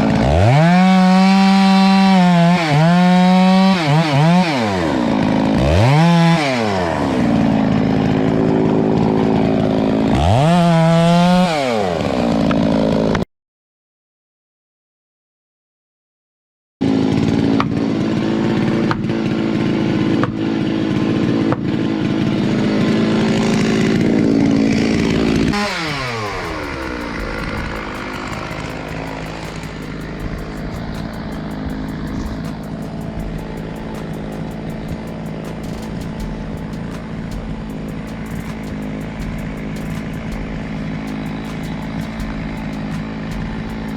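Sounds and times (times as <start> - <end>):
chainsaw running: 0.0 - 13.2, 16.8 - 43.9
faint regular clicks: 25.5 - 43.9.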